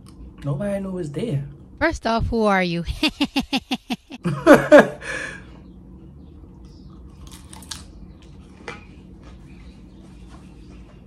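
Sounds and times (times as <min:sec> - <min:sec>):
salad being chewed: 0:06.4 - 0:09.4.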